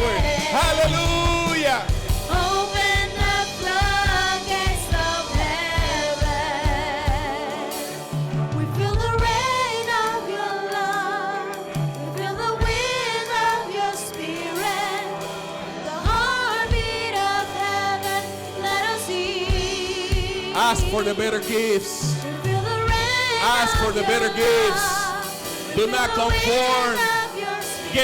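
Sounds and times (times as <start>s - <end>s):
steady drum beat: 0.0s - 10.2s, 16.1s - 28.0s
voices singing long notes: 0.0s - 28.0s
worship band playing: 0.0s - 28.0s.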